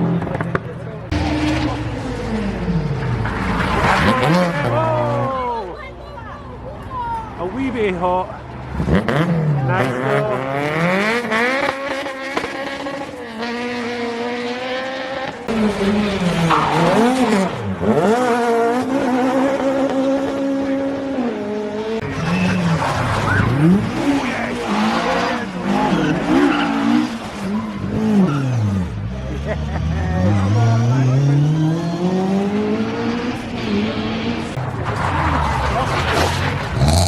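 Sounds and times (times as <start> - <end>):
rally car engine revving: 0.0 - 5.7, 7.7 - 37.0
tyres squealing and skidding: 1.1 - 7.9, 15.5 - 19.5, 22.0 - 32.2, 32.9 - 37.0.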